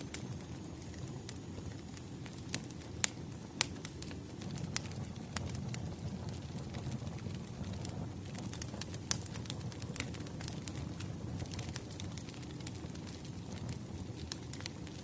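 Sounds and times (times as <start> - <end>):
burning logs rumbling: 0.0 - 15.0
wood fire popping: 0.0 - 15.0.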